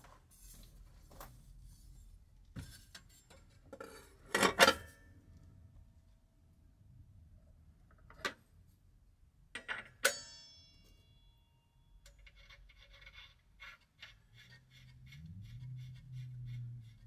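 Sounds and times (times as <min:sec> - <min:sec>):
rhythmic scraping strokes: 0:12.4 - 0:17.0.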